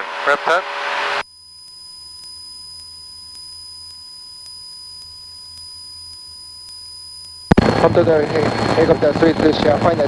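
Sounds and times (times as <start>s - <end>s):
audio line hiss: 0.0s - 10.0s
electronic whine tones: 0.0s - 10.0s
muffled aircraft engine hum: 7.4s - 10.0s.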